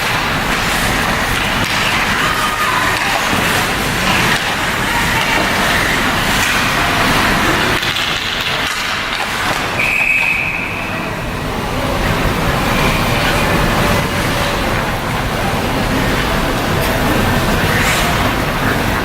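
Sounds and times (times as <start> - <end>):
skating and arena rush: 0.0 - 19.0
high whistle blast: 9.8 - 11.1.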